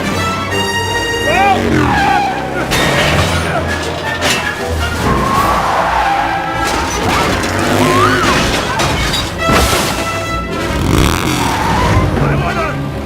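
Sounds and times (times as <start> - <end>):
orchestral score: 0.0 - 13.0
crash and impact effects: 2.7 - 11.6.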